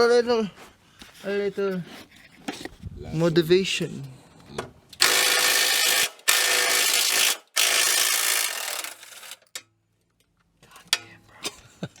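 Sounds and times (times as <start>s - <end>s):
power tool bursts: 5.0s - 9.6s.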